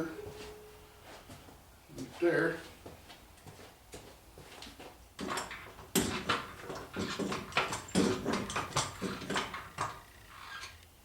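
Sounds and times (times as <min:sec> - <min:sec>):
metal clanks and knocks: 0:05.2 - 0:10.1.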